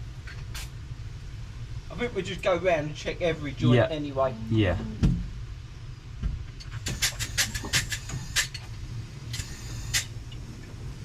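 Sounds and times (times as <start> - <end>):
steady low hum: 0.0 - 11.0
sharp clicks and light knocks: 6.2 - 10.5.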